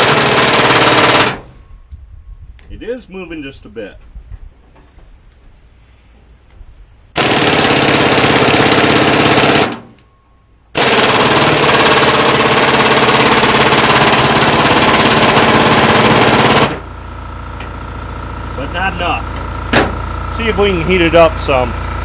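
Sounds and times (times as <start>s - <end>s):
pneumatic impact wrench hammering: 0.0s - 1.5s, 7.2s - 10.0s, 10.7s - 16.9s, 19.4s - 20.1s.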